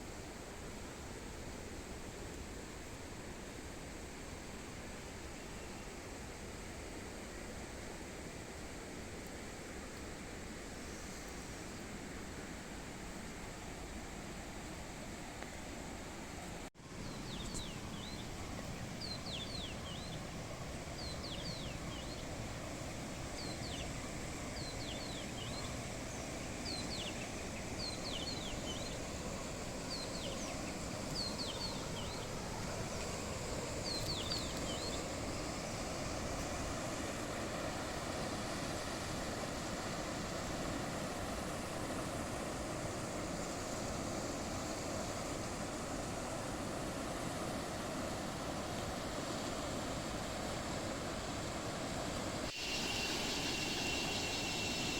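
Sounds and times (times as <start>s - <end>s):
bird chirping: 17.0s - 20.2s, 21.0s - 22.3s, 23.4s - 29.1s, 29.9s - 32.3s, 52.6s - 54.9s.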